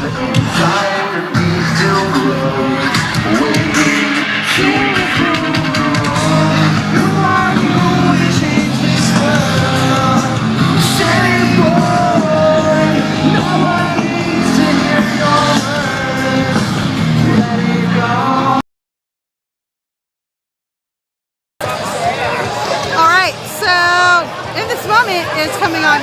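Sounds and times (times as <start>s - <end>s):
lead singer singing: 0.0s - 18.6s
live rock band playing: 0.0s - 18.6s.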